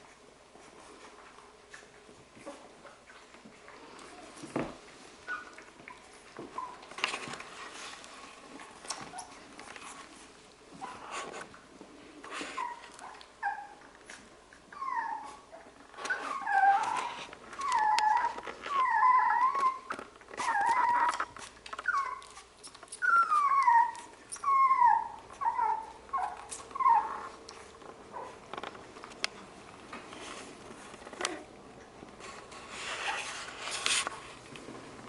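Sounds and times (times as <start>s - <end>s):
puppies whining and yelping: 5.2s - 7.1s, 8.5s - 10.0s, 12.2s - 28.4s.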